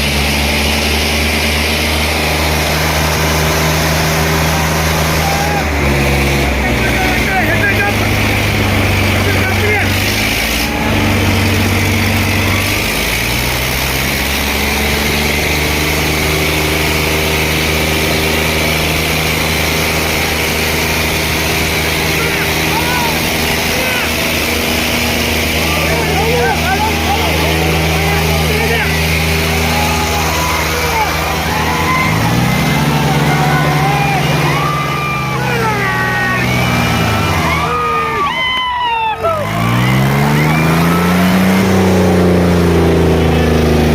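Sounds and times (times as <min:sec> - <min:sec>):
diesel tractor engines under load: 0:00.0 - 0:43.9
person shouting: 0:29.5 - 0:36.6, 0:37.2 - 0:39.6.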